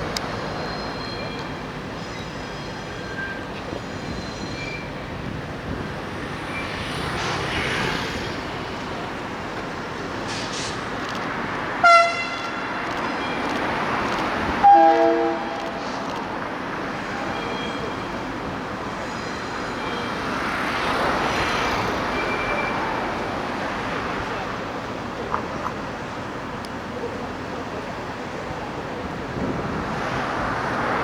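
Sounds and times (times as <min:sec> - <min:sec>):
locomotive horn: 0:11.8 - 0:12.6, 0:14.6 - 0:15.8.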